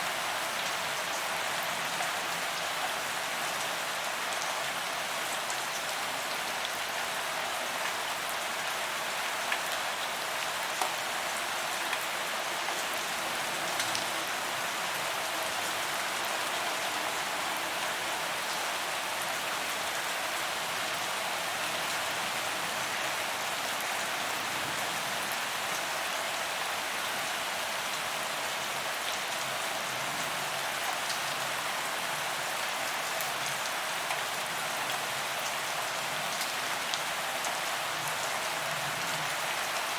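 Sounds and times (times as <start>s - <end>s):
rain on pavement: 0.0s - 39.9s.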